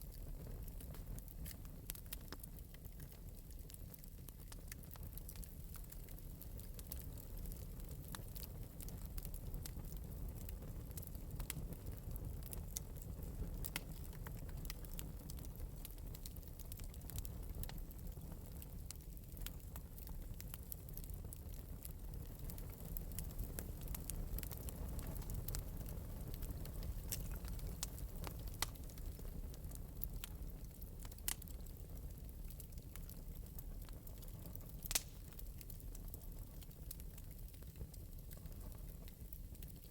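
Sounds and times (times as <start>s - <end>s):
flame low rumble: 0.0s - 39.9s
wood fire sharp pops: 0.4s - 32.1s, 32.7s - 39.8s.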